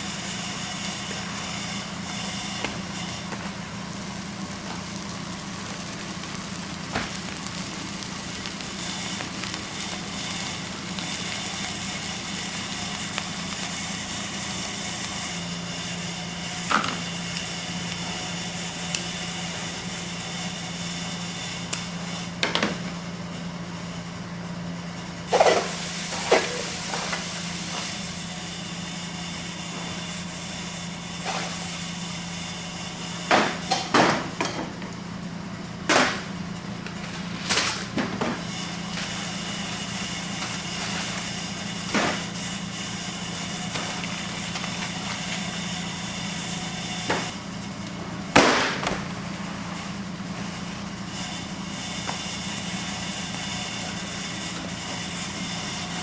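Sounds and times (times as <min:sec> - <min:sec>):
machine hum: 0:00.0 - 0:25.6.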